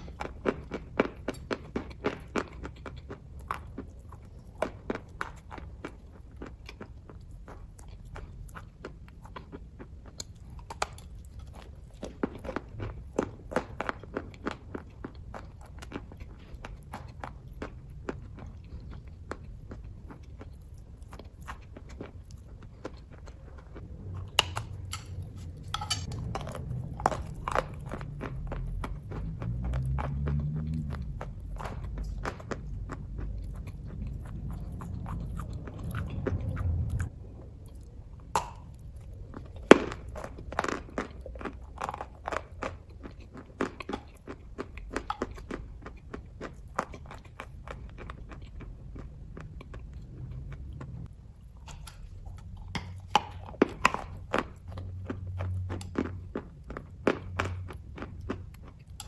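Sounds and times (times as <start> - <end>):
chewing mouth clicks and smacks: 0.0 - 59.0
low rumble: 23.3 - 41.9, 47.4 - 52.8.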